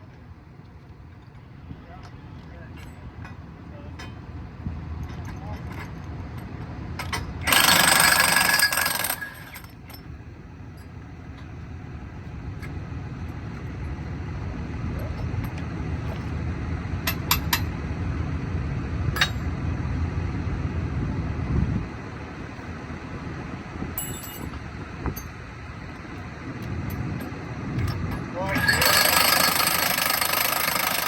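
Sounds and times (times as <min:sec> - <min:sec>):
sharp metal clinks: 0:24.0 - 0:24.5, 0:28.4 - 0:30.0.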